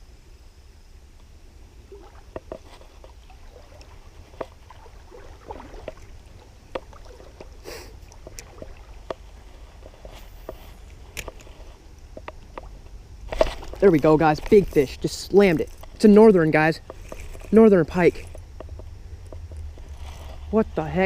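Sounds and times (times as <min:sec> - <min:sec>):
steady low rumble: 0:00.0 - 0:21.0
creek water sloshing: 0:01.8 - 0:21.0
small splashes: 0:01.9 - 0:09.9.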